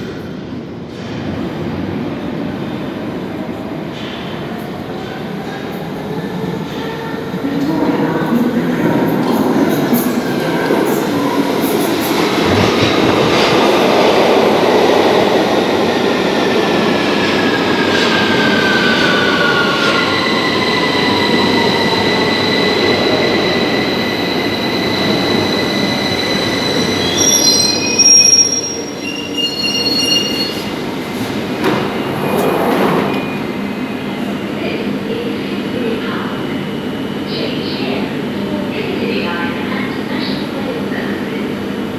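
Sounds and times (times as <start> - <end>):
train running noise: 2.9 - 41.9
high brake squeals: 19.8 - 30.8.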